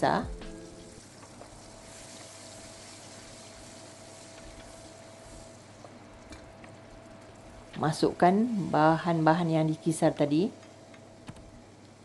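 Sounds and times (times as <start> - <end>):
faint steady hum: 0.0 - 12.0
paste sizzling in hot oil: 0.9 - 6.2.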